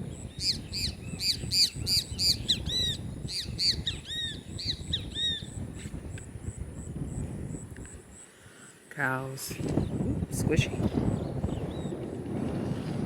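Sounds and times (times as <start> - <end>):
bird chirping rapidly: 0.2 - 5.6.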